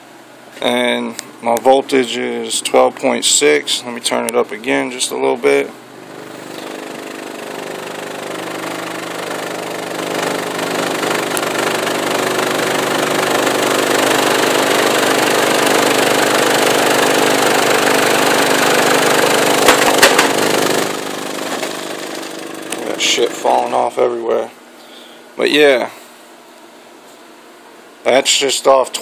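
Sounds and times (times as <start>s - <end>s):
subwoofer buzzing drone: 0.0s - 24.5s.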